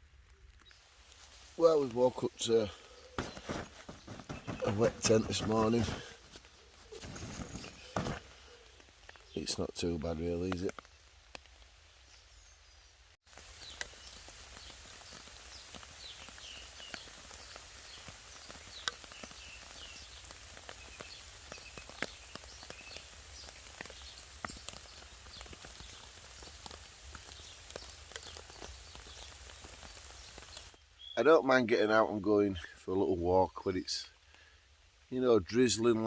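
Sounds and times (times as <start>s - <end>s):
small birds chirping: 0.3s - 36.0s
raindrops tapping: 0.5s - 12.0s, 13.3s - 30.8s.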